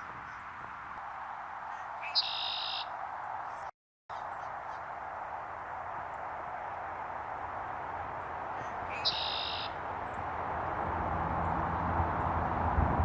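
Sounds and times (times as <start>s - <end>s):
blackbird song with buzzy trill: 1.9s - 2.9s, 8.6s - 9.8s.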